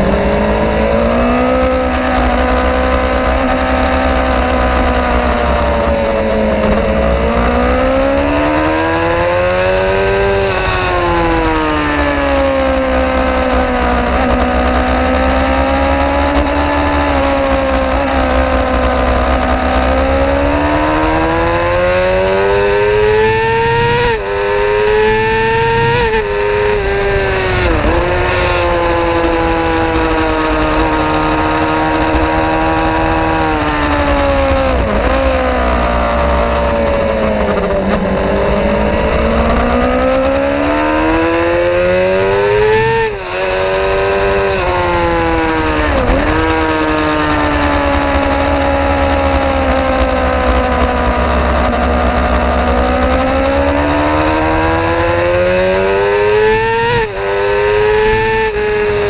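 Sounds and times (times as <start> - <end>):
low wind rumble: 0.0 - 59.0
motorcycle engine revving: 0.0 - 59.0.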